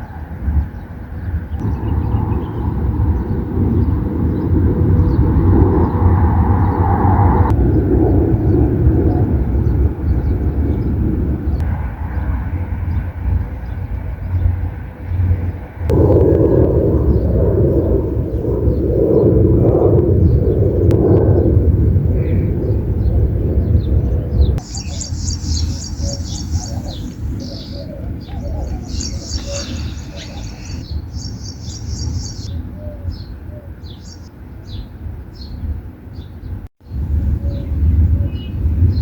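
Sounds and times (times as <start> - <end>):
low rumble: 1.2 - 32.7
faint bird chirps: 24.6 - 33.3.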